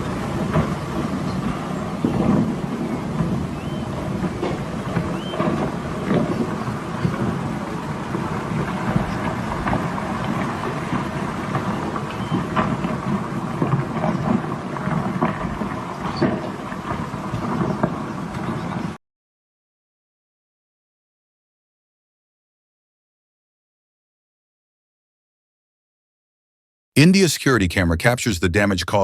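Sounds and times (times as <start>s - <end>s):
rockfall low rumble: 0.0s - 19.0s.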